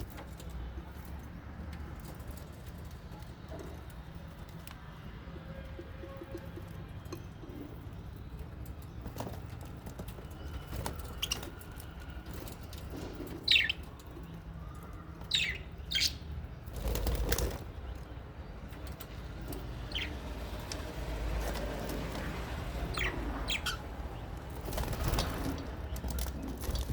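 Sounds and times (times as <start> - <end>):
parrots chirping: 13.4 - 13.9, 15.2 - 16.3, 19.1 - 26.9
wing flapping: 16.7 - 17.8, 24.5 - 26.9.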